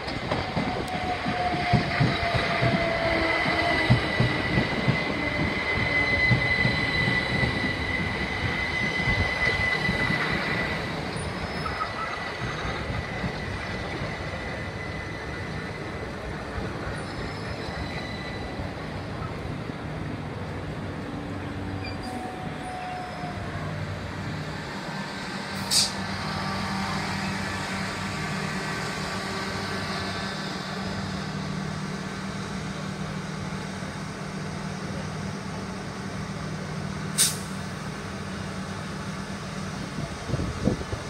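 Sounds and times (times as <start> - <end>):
train rumble: 0.0 - 41.0
air hisses: 25.6 - 26.0, 37.1 - 37.6.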